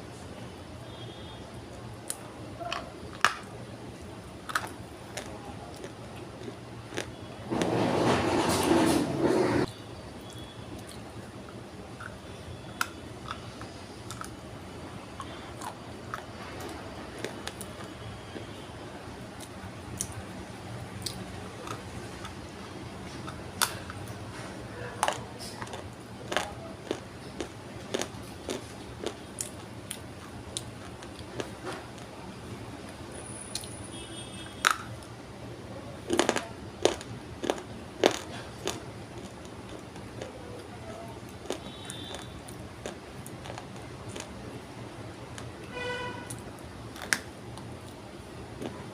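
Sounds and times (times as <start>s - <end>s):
clay being chewed: 4.5s - 7.2s, 10.3s - 14.4s, 15.1s - 18.5s, 21.0s - 32.1s, 36.1s - 40.7s, 41.3s - 44.4s.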